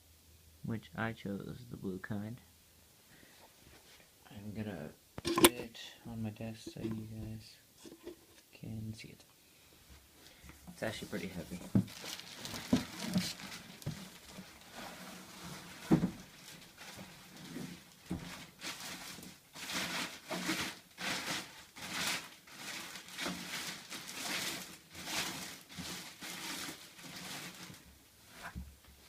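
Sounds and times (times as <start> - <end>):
box thump: 5.2 - 5.6
packaging rustling and scraping: 6.6 - 8.4, 10.8 - 28.6.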